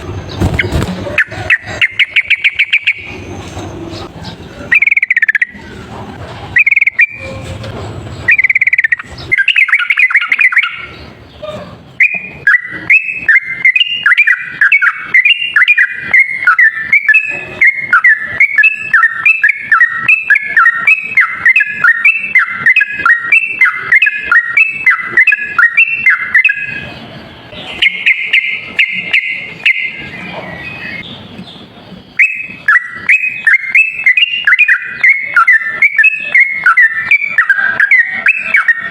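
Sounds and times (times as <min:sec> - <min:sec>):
bulbul singing chattering song: 0:00.0 - 0:05.9, 0:06.5 - 0:07.4, 0:08.2 - 0:38.9.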